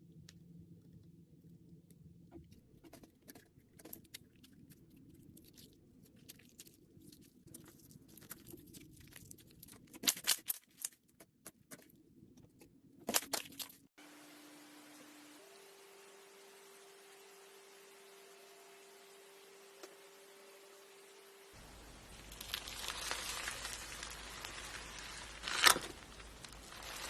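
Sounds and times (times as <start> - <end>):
low hum: 14.0 - 27.0
steady hiss: 14.0 - 27.0
crunching crackles: 21.6 - 27.0
small crackling clicks: 22.1 - 27.0.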